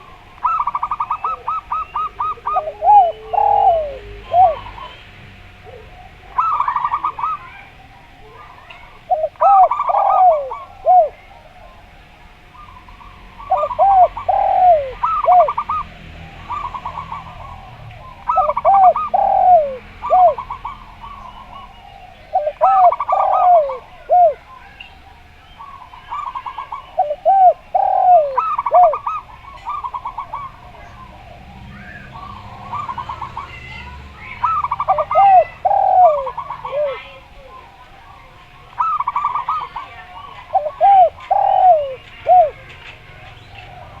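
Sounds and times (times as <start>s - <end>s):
doves cooing: 0.0s - 44.0s.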